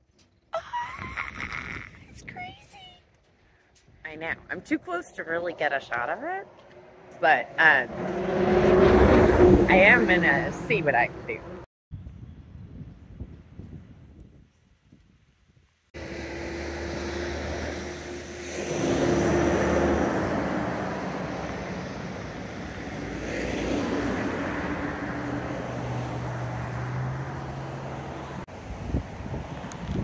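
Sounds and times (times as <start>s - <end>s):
passing traffic: 2.5s - 11.7s, 16.0s - 30.0s.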